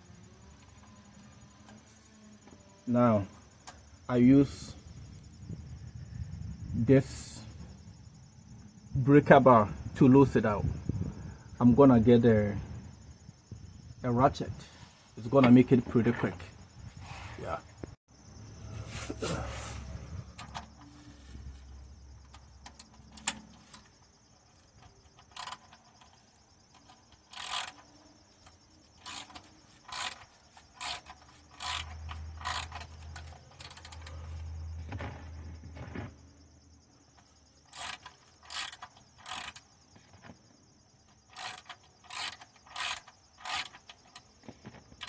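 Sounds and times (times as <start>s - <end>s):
socket ratchet clicking: 24.5s - 34.1s, 37.7s - 39.7s, 41.2s - 44.3s.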